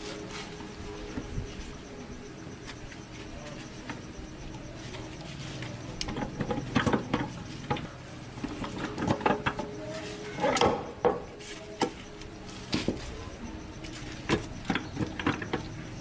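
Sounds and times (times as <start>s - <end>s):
steady low hum: 0.0s - 16.0s
tools and parts knocking: 6.0s - 9.7s, 14.3s - 15.7s.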